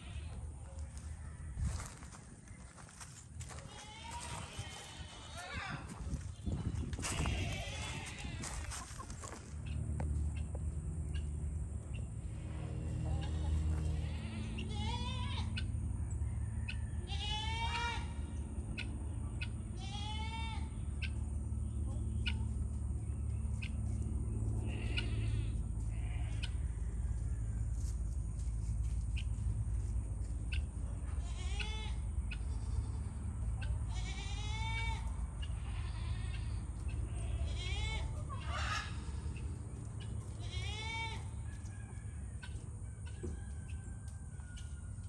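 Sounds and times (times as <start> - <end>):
goats bleating: 0.0 - 1.1, 1.7 - 9.4, 12.3 - 15.7, 17.0 - 18.4, 19.7 - 20.8, 24.6 - 26.6, 31.0 - 39.2, 40.3 - 41.4
low rumble: 4.4 - 16.3.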